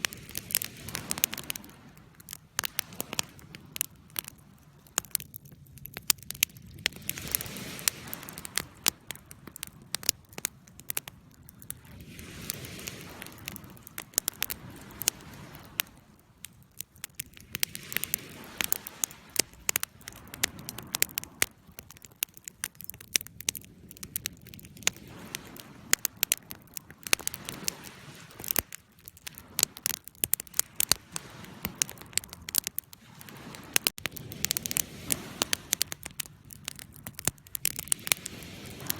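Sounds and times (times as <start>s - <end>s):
ocean waves: 0.0s - 5.3s, 6.9s - 22.6s, 24.6s - 38.9s
wood fire crackling: 0.0s - 38.9s.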